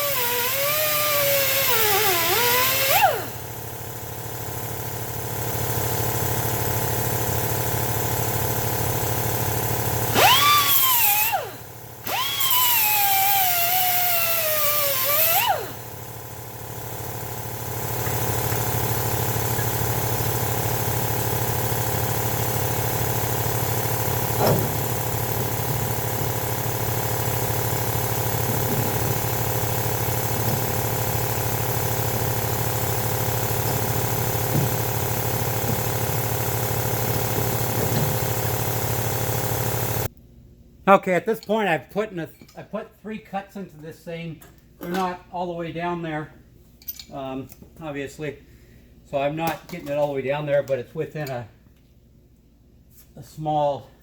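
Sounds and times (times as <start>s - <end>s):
angle grinder cutting metal: 0.0s - 3.4s, 10.1s - 15.8s.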